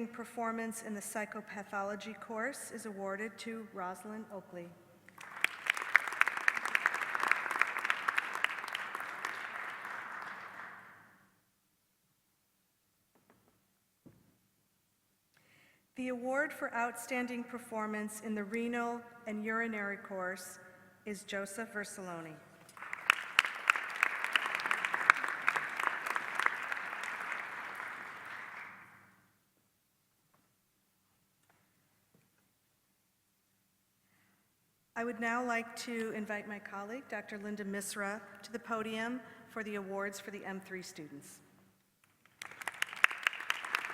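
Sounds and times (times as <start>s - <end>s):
audience applauding: 5.1s - 10.9s, 22.7s - 29.0s, 42.2s - 43.9s.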